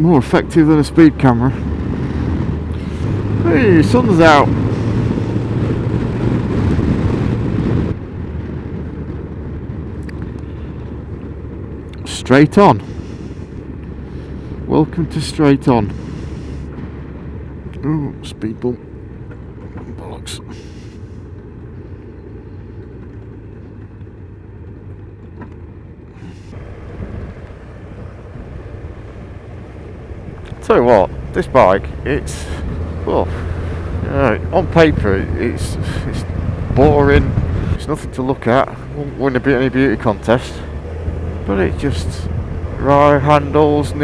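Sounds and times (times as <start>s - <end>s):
motorcycle engine: 0.0s - 44.0s
rushing wind and road noise: 0.0s - 44.0s.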